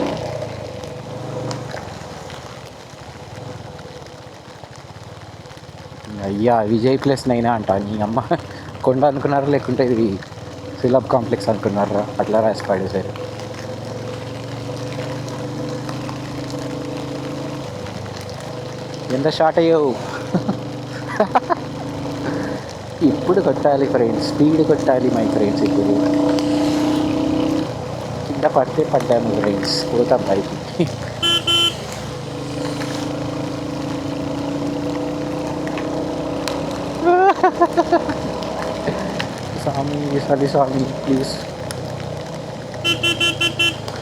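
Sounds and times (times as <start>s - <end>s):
motorcycle engine running: 24.1s - 39.4s, 41.6s - 44.0s.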